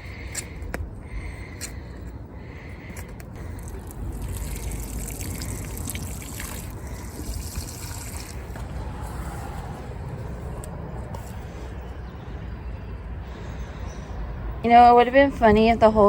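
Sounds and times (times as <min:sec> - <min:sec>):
trickle of running water: 0:03.6 - 0:08.6.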